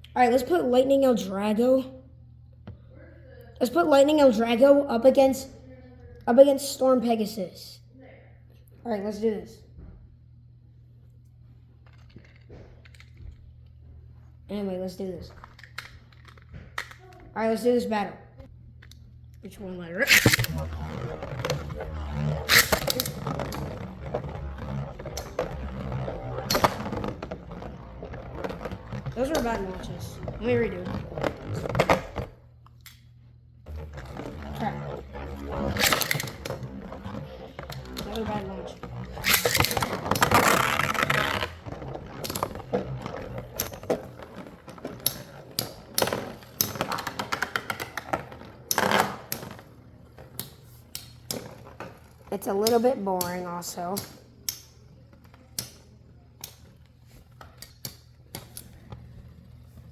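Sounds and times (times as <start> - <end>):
spinning tops clicking together: 20.0 - 32.2, 33.7 - 49.6
ripcord launcher rip: 20.0 - 32.3, 33.7 - 47.2.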